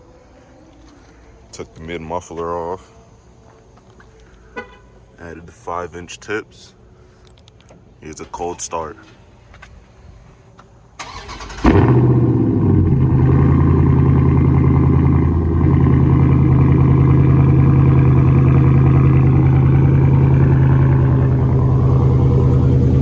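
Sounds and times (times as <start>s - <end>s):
starter motor cranking: 11.0s - 11.9s
loud car engine idling: 11.1s - 23.0s.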